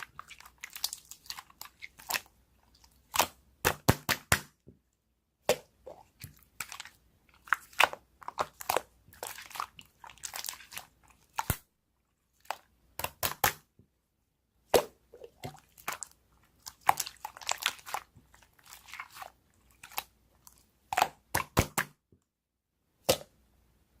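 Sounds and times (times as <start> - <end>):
slime popping and squishing: 5.4 - 11.7, 12.4 - 13.7, 14.7 - 20.1, 20.8 - 22.0.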